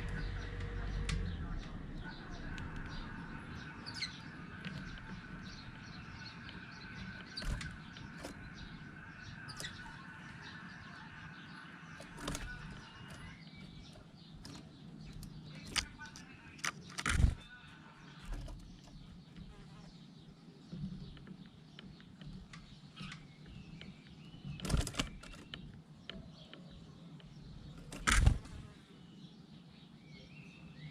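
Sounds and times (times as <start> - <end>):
low background rumble and hum: 0.0 - 19.6
bird chirps: 0.0 - 30.9
sharp clicks: 12.0 - 17.5.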